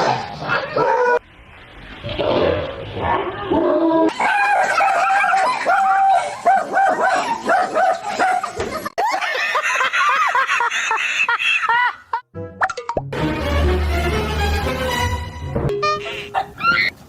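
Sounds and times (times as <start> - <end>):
dog barking: 4.2 - 8.6.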